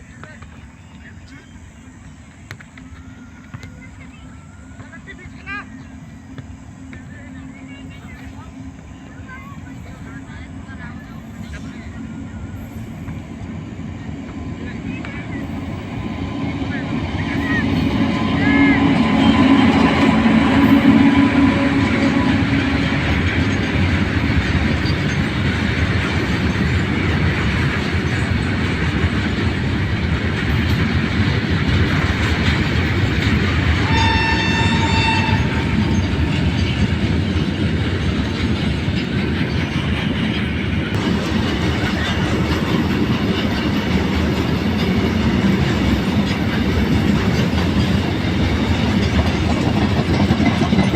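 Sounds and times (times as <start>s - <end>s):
train wheels rumbling on rails: 0.0s - 50.9s
train horn blast: 16.3s - 24.1s, 33.7s - 36.8s.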